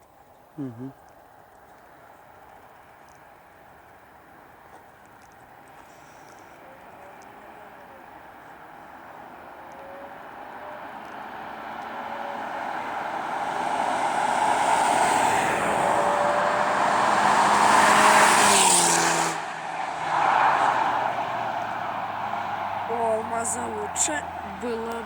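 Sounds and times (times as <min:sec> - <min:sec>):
car accelerating past: 0:05.6 - 0:25.0.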